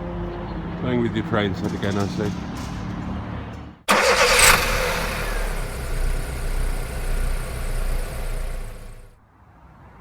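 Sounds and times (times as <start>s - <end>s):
car engine idling: 3.9s - 9.1s.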